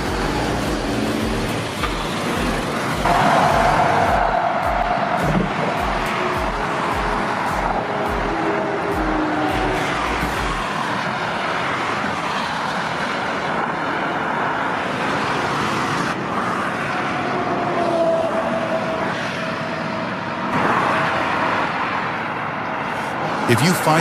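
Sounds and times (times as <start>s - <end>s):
heavy trucks driving: 0.0s - 12.0s, 23.4s - 24.0s.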